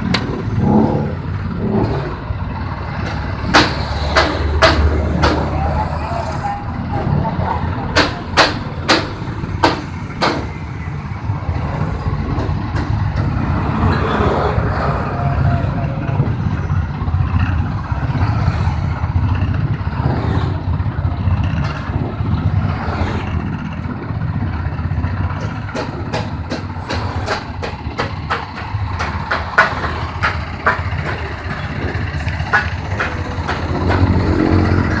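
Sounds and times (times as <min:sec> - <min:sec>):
sharp clicks and rattles: 0:19.2 - 0:35.0.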